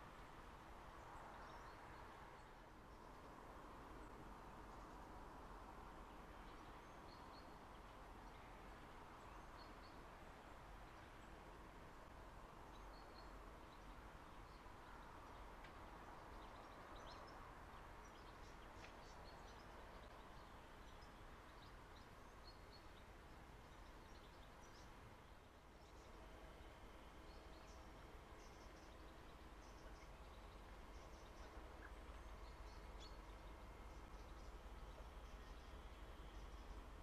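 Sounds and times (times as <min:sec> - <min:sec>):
faint background noise: 0:00.0 - 0:37.0.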